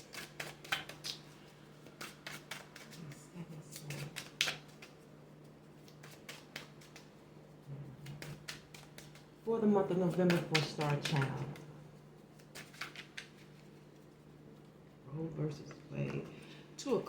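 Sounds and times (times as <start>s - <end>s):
cards tapping and rustling on table: 10.1s - 11.6s, 12.4s - 13.5s.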